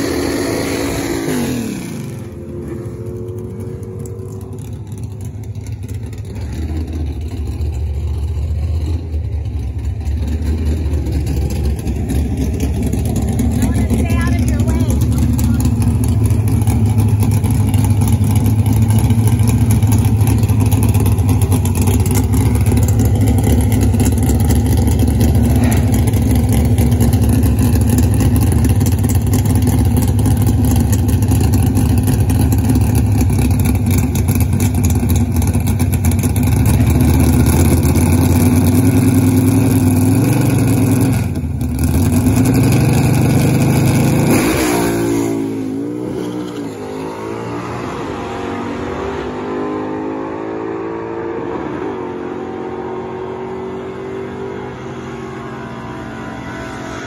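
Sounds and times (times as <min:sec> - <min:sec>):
engine revving at full throttle: 0:00.0 - 0:04.8, 0:11.8 - 0:33.8, 0:35.6 - 0:57.0
car engine idling loudly: 0:00.0 - 0:44.3.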